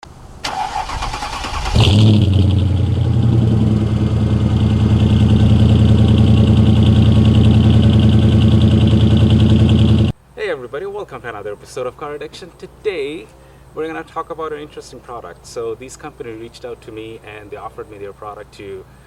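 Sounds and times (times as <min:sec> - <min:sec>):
car starter cranking: 0:00.4 - 0:03.7
car engine idling: 0:00.4 - 0:10.1.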